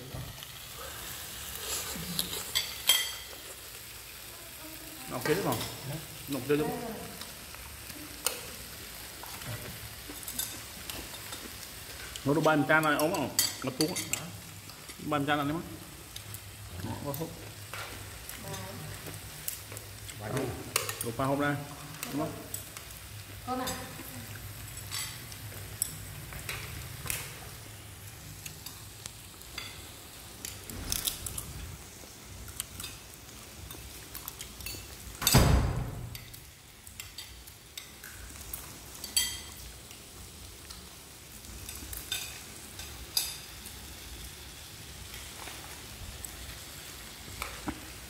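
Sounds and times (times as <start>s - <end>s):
food sizzling in a pan: 0.0s - 48.0s
loud thump: 35.3s - 36.1s.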